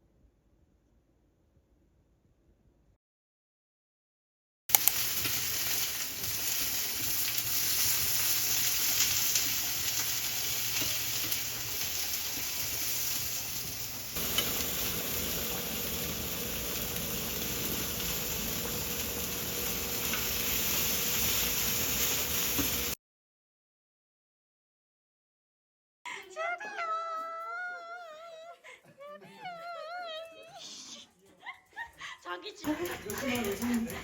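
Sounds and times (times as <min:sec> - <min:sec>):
food sizzling in a pan: 0:04.7 - 0:23.0, 0:32.6 - 0:34.0.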